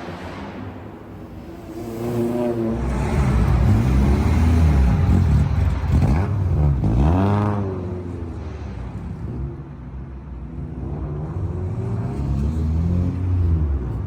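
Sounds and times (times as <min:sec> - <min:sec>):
car engine revving: 0:01.3 - 0:07.7.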